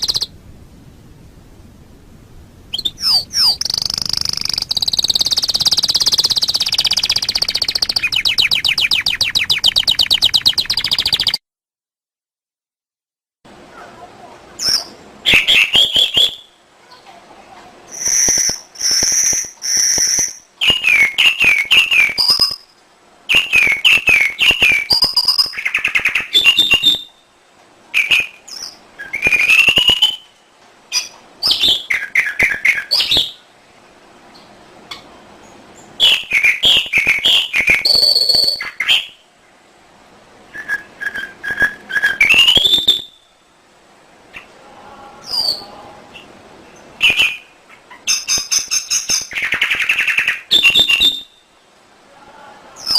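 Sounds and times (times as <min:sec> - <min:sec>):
canary singing: 0:00.0 - 0:00.4, 0:02.7 - 0:11.4, 0:14.6 - 0:16.6, 0:17.9 - 0:27.2, 0:28.0 - 0:30.3, 0:30.9 - 0:33.4, 0:34.9 - 0:39.2, 0:40.5 - 0:43.4, 0:44.3 - 0:51.6.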